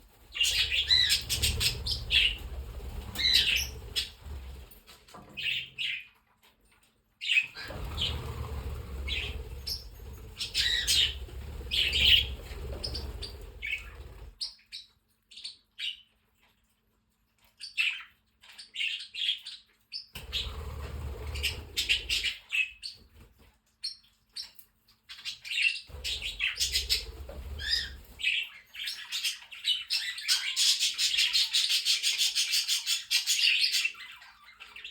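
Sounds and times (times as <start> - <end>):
parrots chirping and chattering: 0.0 - 34.9
low rumble: 7.7 - 14.3.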